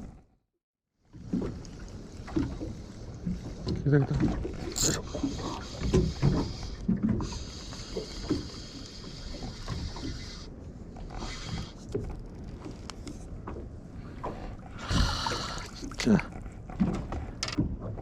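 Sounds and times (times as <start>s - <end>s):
fishing reel whirring: 4.6s - 6.6s, 7.2s - 12.5s.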